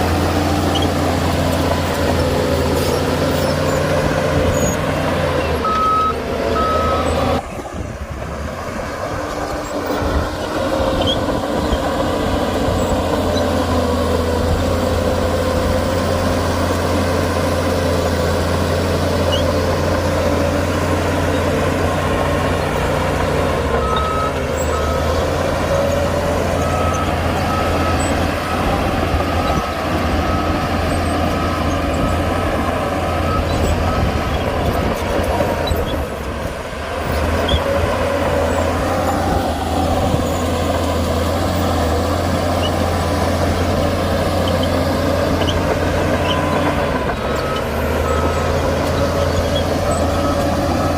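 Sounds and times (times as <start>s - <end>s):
heavy diesel engine running: 0.0s - 50.9s
reversing alarm beeping: 5.6s - 7.4s, 23.4s - 34.9s, 42.7s - 50.9s.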